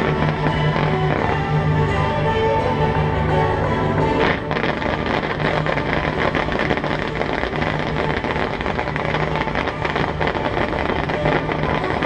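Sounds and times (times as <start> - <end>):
fireworks fountains hissing and crackling: 0.0 - 12.0.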